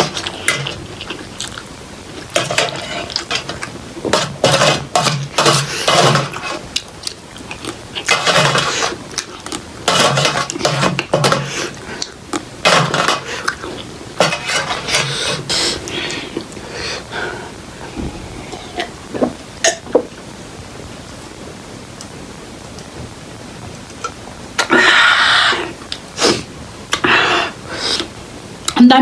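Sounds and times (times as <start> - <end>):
person slurping and chewing noodles: 0.0 - 19.0
utensils clinking against dish: 14.2 - 15.7.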